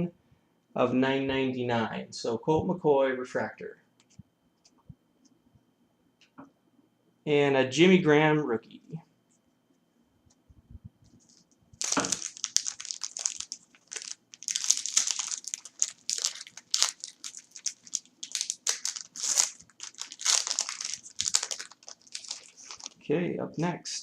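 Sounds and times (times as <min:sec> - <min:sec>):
foil wrapper crinkling and tearing: 0:11.2 - 0:23.0.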